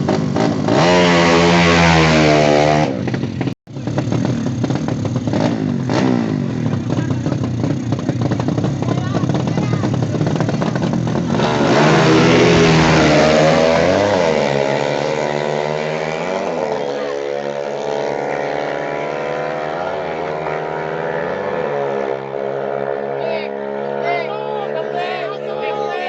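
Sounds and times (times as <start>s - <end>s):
motorcycle engine idling with throttle blips: 3.1s - 11.3s.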